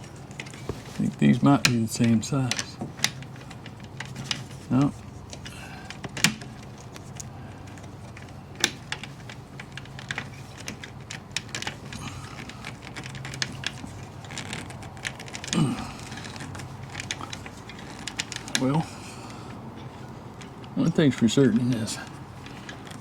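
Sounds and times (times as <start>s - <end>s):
person humming: 15.6s - 16.1s.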